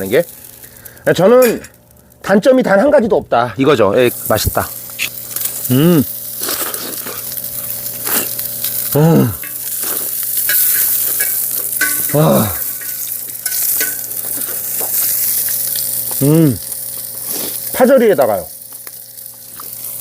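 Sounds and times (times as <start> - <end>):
meat sizzling: 0.0 - 2.8, 3.6 - 20.0
man humming: 5.6 - 6.2, 8.8 - 9.5, 12.0 - 12.8, 16.1 - 16.7.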